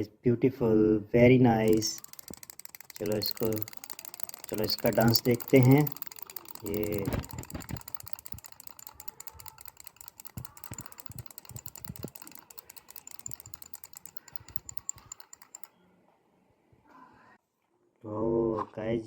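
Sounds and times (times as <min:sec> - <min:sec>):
toy mechanism clicking: 0:01.6 - 0:15.8.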